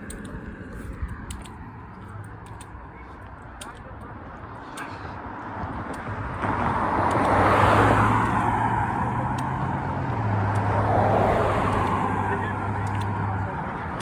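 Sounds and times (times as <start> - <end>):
car driving past: 6.4 - 13.5.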